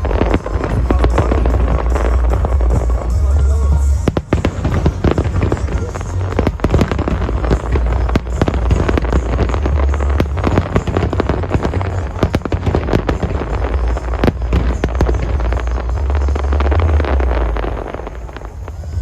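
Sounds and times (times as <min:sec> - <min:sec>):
fireworks bangs and crackles: 0:00.0 - 0:19.0
low rumble: 0:00.0 - 0:19.0.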